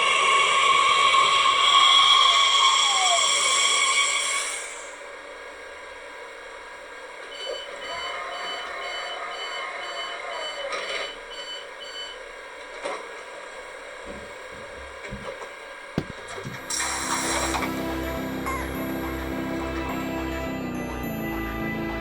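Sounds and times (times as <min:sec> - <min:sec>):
electronic warning beeps: 0:07.3 - 0:12.2.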